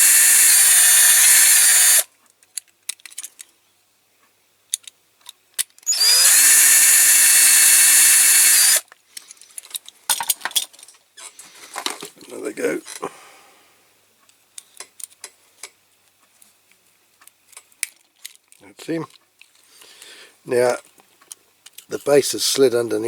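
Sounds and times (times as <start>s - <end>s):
electric drill drilling: 0.0s - 2.1s, 5.8s - 8.8s
light clicks of model handled: 2.2s - 3.6s, 4.7s - 5.8s, 8.9s - 10.9s, 14.2s - 20.1s.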